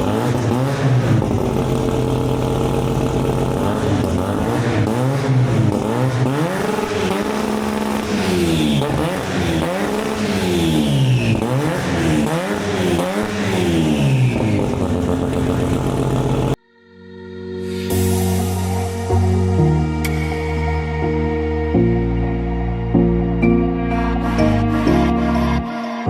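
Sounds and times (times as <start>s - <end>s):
car engine revving: 0.0s - 16.6s.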